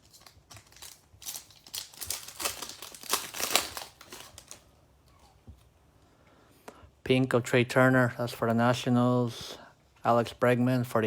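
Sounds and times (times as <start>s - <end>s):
wrapper tearing and crinkling: 0.0s - 4.7s.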